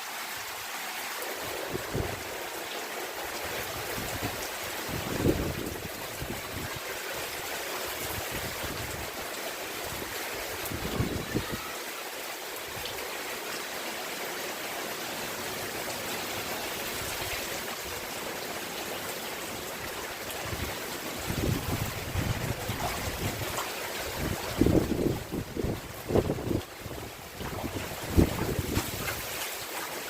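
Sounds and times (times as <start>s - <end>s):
steady rain falling: 0.0s - 30.0s
wind buffeting microphone: 3.8s - 6.8s, 20.4s - 29.3s.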